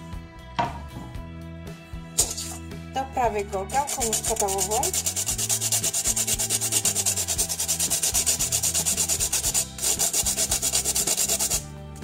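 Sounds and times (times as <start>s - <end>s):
nutmeg scraping on metal grater: 3.7s - 11.6s.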